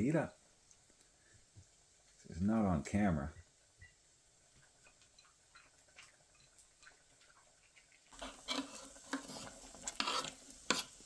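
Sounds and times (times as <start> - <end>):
sizzle: 0.0 - 11.0
utensil scraping in a pan: 4.6 - 11.0.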